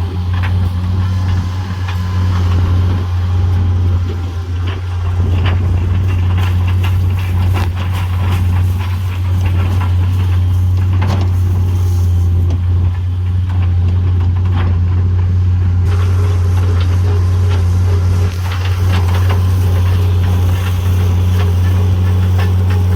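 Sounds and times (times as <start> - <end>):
knocks and cracks of wood: 0.0 - 16.0
heavy machine engine running: 0.0 - 22.9.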